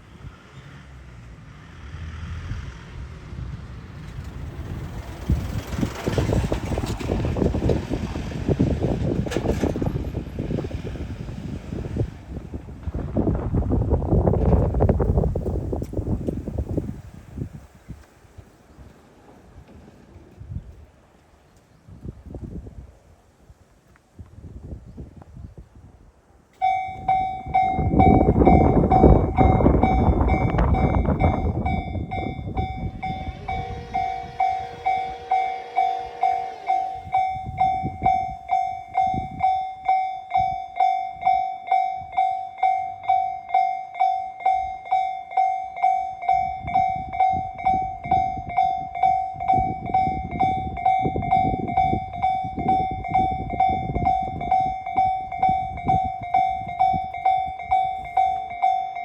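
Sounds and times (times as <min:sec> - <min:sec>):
level-crossing alarm ringing: 0:26.6 - 0:59.0
loud rushing noise: 0:29.0 - 0:38.4.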